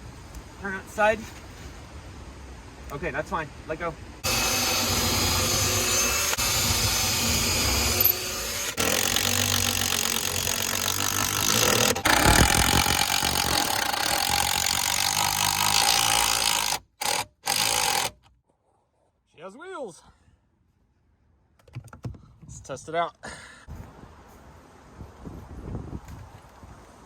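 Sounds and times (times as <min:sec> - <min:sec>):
power drill running: 0:04.2 - 0:18.1.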